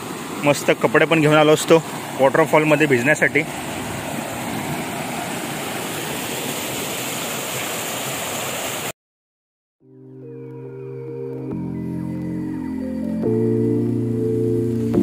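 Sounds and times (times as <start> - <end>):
waterfall roaring: 0.0 - 8.9
soft ambient music: 9.8 - 15.0.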